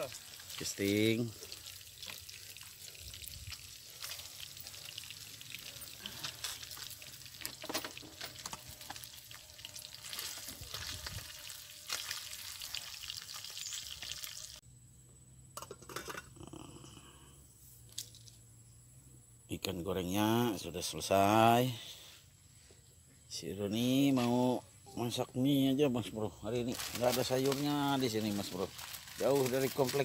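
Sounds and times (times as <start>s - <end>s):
fish frying in oil: 0.0s - 14.6s, 27.3s - 30.0s.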